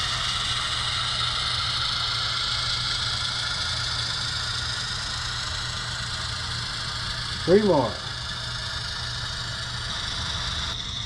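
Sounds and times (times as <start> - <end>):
low hum: 0.0 - 11.0
model train diesel engine sound: 0.0 - 11.0.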